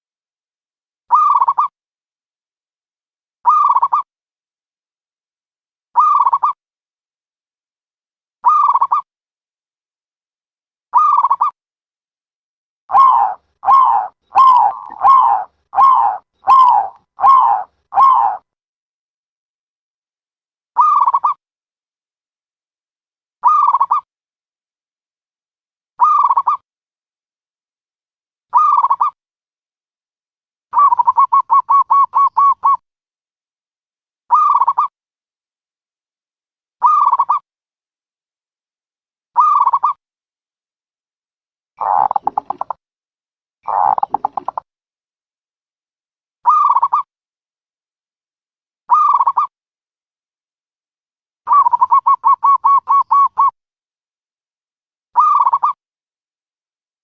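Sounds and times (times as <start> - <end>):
dove cooing: 12.9 - 18.4, 41.8 - 42.6, 43.7 - 44.6, 51.5 - 53.5.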